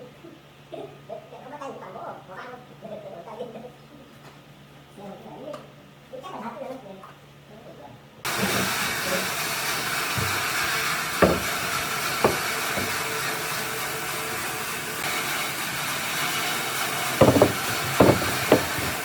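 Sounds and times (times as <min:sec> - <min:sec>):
steady loud hiss: 0:08.3 - 0:19.0
sharp knocks: 0:10.2 - 0:10.5, 0:11.2 - 0:13.1, 0:17.2 - 0:19.0.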